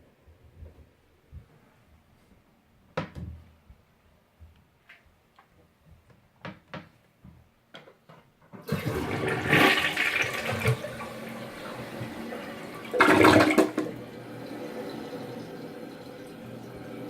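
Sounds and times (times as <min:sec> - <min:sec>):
toilet flushing: 0:08.6 - 0:17.0.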